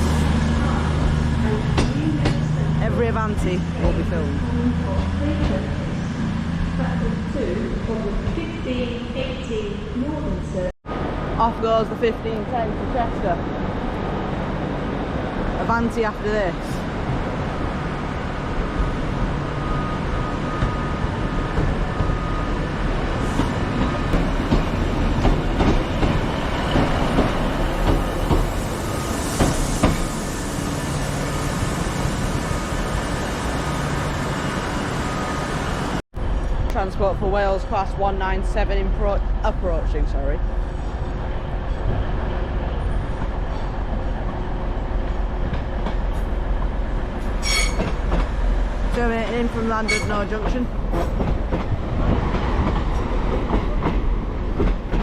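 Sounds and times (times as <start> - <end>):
train running rumble: 0.0 - 18.6, 20.4 - 55.0
high-pitched squeal: 47.4 - 47.8.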